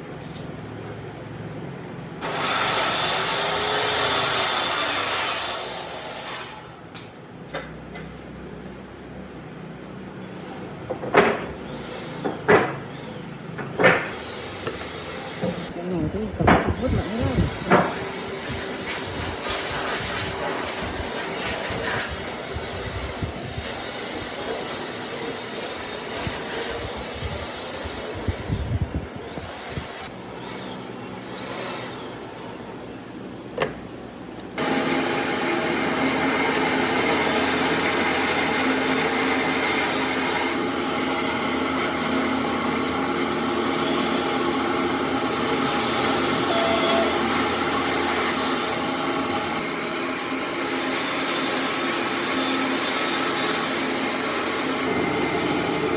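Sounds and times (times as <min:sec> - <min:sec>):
electric power tool running: 0:02.2 - 0:06.6, 0:13.8 - 0:19.4, 0:34.6 - 0:55.9
workshop handling noise: 0:10.2 - 0:20.2, 0:33.5 - 0:34.6
knocks: 0:10.9 - 0:11.6, 0:12.2 - 0:12.9, 0:13.6 - 0:14.2, 0:16.4 - 0:16.9, 0:17.6 - 0:18.0.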